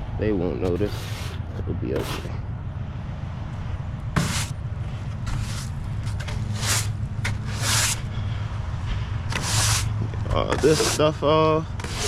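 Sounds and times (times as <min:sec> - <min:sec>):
diesel engine idling: 0:01.4 - 0:11.8
short scuffing hissing noises: 0:04.2 - 0:04.6, 0:05.3 - 0:08.1.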